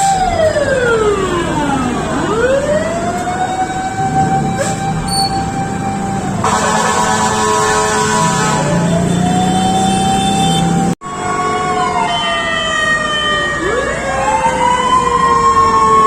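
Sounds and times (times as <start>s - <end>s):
fire truck sirens wailing: 0.0s - 16.0s.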